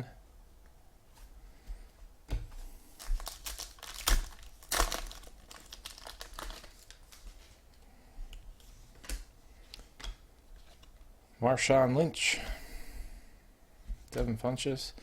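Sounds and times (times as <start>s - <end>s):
foil wrapper crinkling and tearing: 3.0s - 7.4s.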